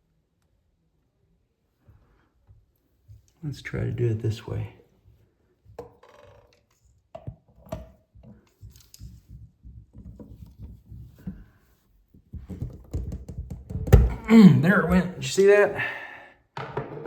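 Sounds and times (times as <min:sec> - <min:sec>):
small clicks taps and scrapes: 0:06.4 - 0:11.4.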